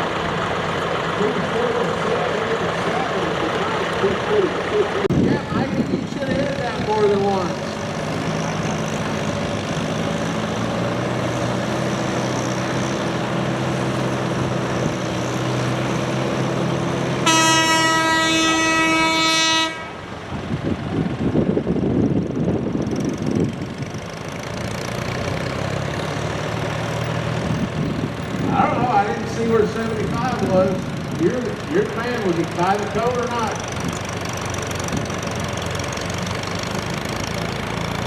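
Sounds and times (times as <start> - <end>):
tractor engine droning: 0.0 - 38.0
loud horn blast: 17.2 - 20.1.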